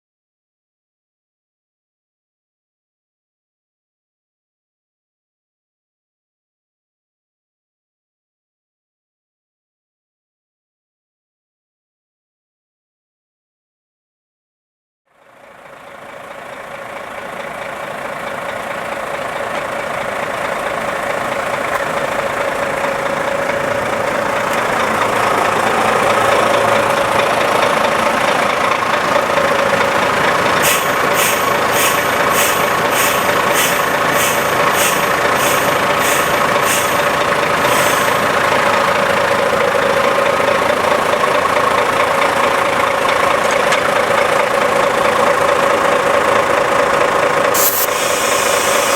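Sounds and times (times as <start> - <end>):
truck engine idling: 15.2 - 48.9
air hissing from tyres: 29.6 - 39.5, 47.6 - 48.9.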